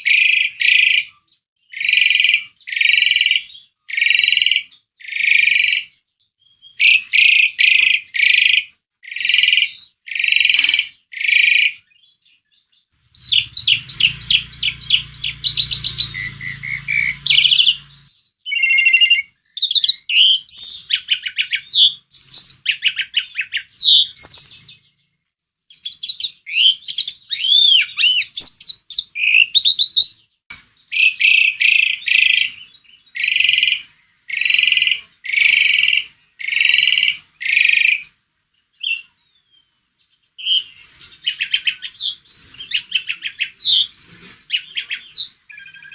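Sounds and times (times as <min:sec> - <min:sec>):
starling singing: 0:13.0 - 0:18.1.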